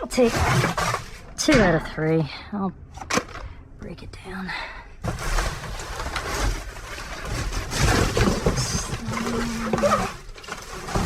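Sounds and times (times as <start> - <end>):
plastic and metal clattering: 3.0 - 3.6, 5.0 - 11.0.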